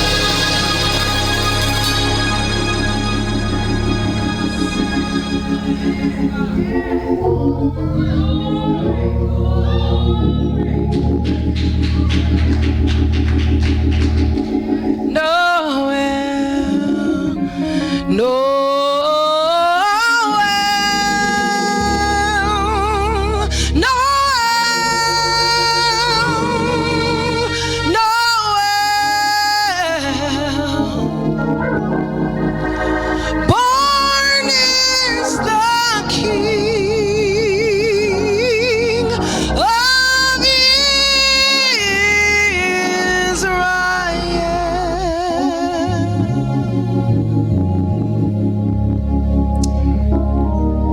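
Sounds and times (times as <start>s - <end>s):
low held instrumental notes: 0.0s - 18.4s, 29.0s - 50.9s
keyboard and bass accompaniment: 0.0s - 50.9s
woman singing gospel: 5.7s - 11.8s, 15.1s - 46.5s.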